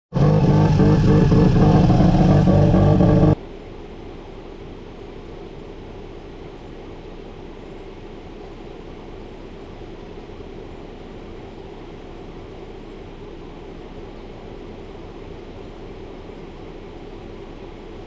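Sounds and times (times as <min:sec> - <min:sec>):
loud raspy rotary engine: 0:00.1 - 0:03.4
quiet steady hum: 0:01.8 - 0:18.0.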